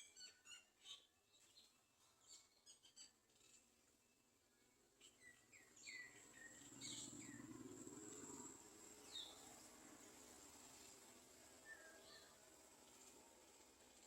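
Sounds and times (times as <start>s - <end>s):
thin insect-like whine: 5.3s - 14.0s.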